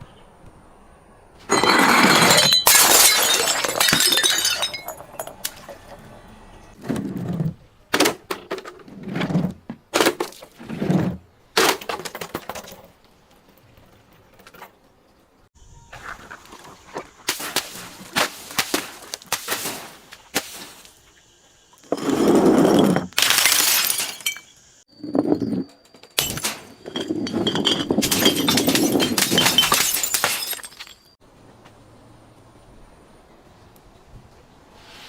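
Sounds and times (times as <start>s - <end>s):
glass bottles smashing: 1.5s - 6.0s, 21.9s - 24.7s, 25.4s - 31.2s.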